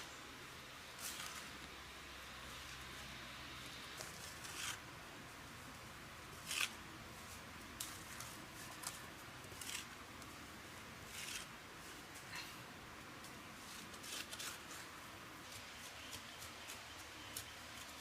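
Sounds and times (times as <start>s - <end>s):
steady hiss: 0.0s - 18.0s
rustling scraping handling sounds: 1.0s - 1.6s, 3.9s - 4.8s, 6.4s - 10.4s, 11.0s - 12.6s, 13.2s - 18.0s.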